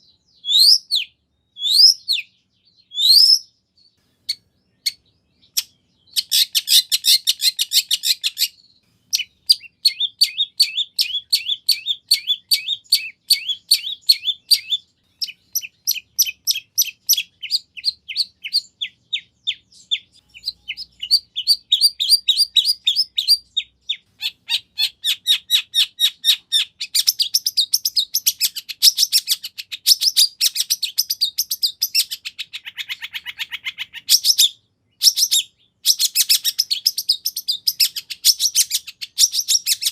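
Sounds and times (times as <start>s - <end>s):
shrike singing: 0.4s - 29.5s.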